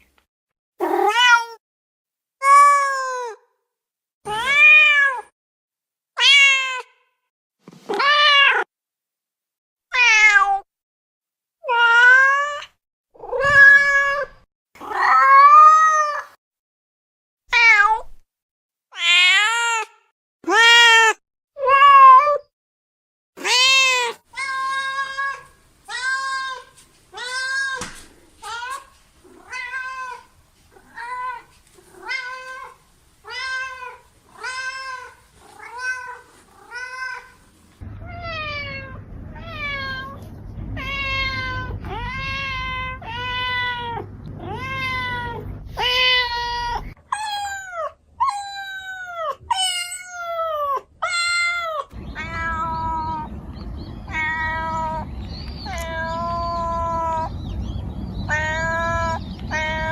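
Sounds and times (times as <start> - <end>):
cats meowing: 6.2 - 6.9, 13.2 - 16.3, 23.4 - 59.9
low background hum: 24.3 - 47.8, 52.0 - 59.9.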